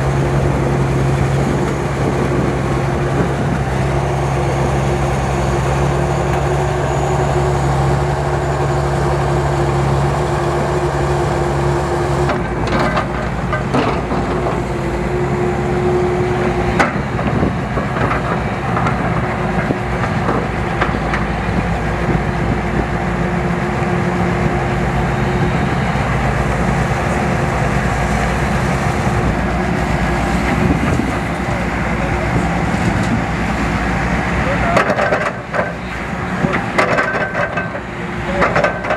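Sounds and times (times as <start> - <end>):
construction machinery engine humming: 0.0 - 38.9
knocks and clanks: 12.3 - 14.6, 34.6 - 35.8, 36.4 - 38.9.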